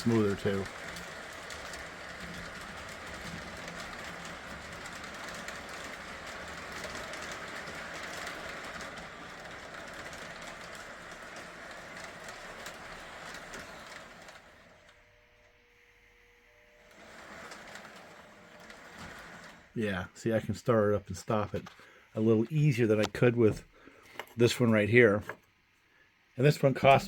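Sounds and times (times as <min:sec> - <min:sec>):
metal wheels rattling over rail joints: 0:00.0 - 0:14.9, 0:17.0 - 0:19.8
model train motor whirring: 0:00.0 - 0:23.4.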